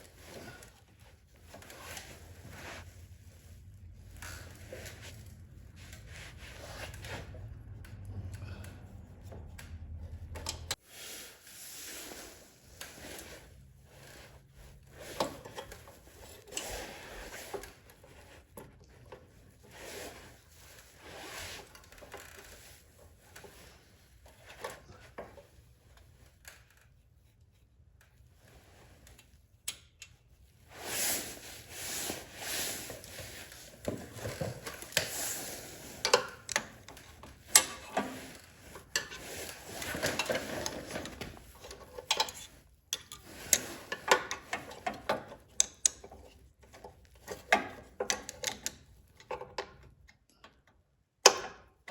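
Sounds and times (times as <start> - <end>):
small parts and tools handled: 30.9 - 49.9.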